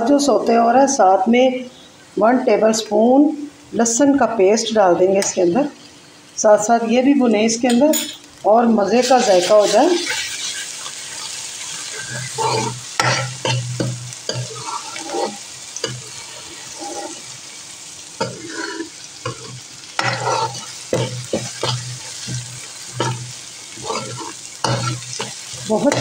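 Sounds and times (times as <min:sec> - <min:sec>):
oil sizzling: 0:00.0 - 0:26.0
metal spoon scraping pan: 0:09.0 - 0:17.3, 0:18.2 - 0:26.0.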